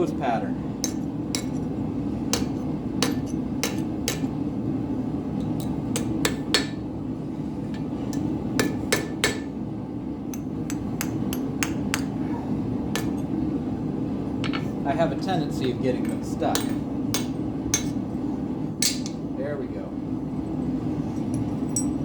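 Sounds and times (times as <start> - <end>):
hammer striking hot steel: 0.8 - 1.7, 2.3 - 4.4, 5.6 - 6.8, 7.8 - 9.5, 10.3 - 12.2, 12.9 - 13.2, 16.4 - 18.0, 18.8 - 19.2.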